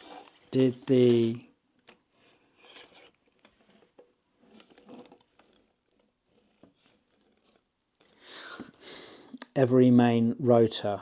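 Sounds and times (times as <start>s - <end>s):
small plastic parts clicking and rattling: 0.0s - 8.2s.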